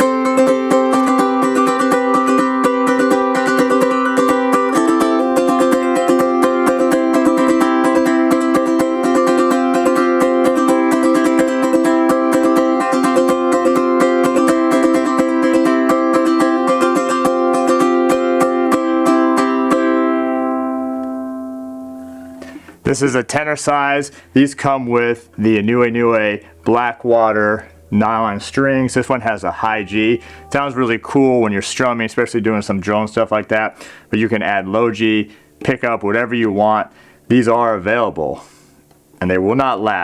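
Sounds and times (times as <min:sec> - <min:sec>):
ukulele strummed fast: 0:00.0 - 0:21.6, 0:22.4 - 0:36.9.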